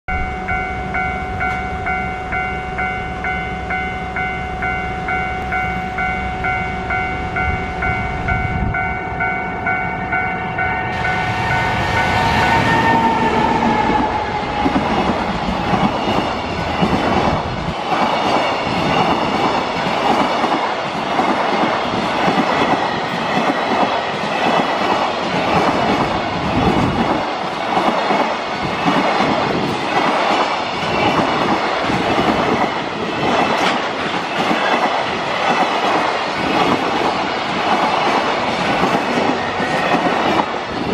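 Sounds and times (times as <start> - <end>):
pulsing warning tone: 0.1 - 17.2
electric locomotive passing: 0.1 - 40.9.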